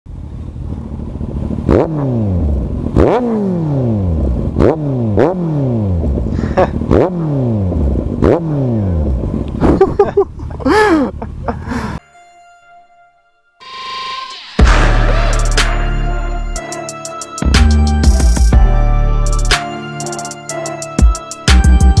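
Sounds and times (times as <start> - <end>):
motorcycle engine revving: 0.1 - 10.6.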